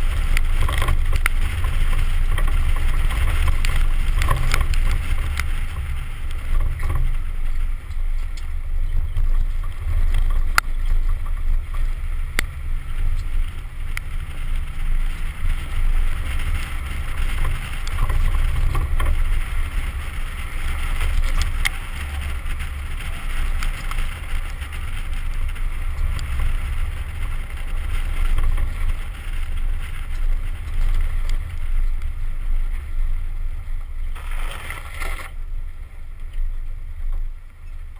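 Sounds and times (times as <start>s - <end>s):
truck engine rumbling: 0.0s - 37.9s.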